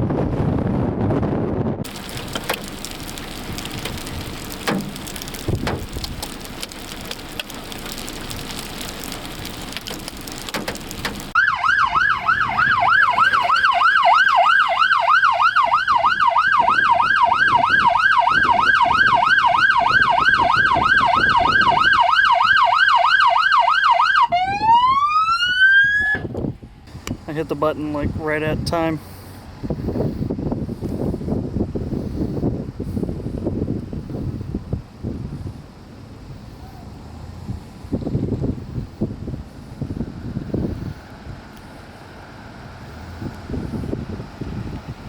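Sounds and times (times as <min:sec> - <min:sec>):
electronic siren: 0:11.4 - 0:26.3.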